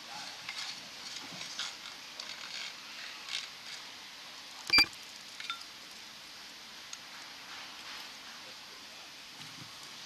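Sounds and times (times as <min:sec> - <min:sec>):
steady low hiss: 0:00.0 - 0:10.0
short electronic beep: 0:04.7 - 0:04.9.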